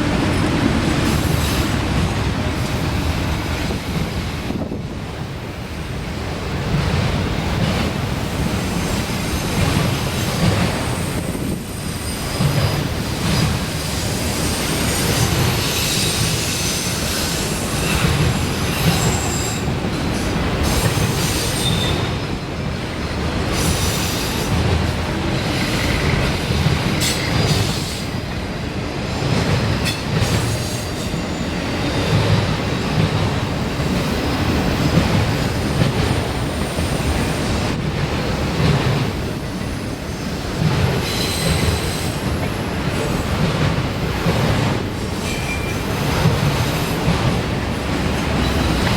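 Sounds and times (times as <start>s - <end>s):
freight train cars rumbling: 0.0s - 48.9s
wheels squealing on rails: 8.4s - 22.4s, 23.5s - 28.3s, 29.8s - 37.8s, 38.6s - 48.9s.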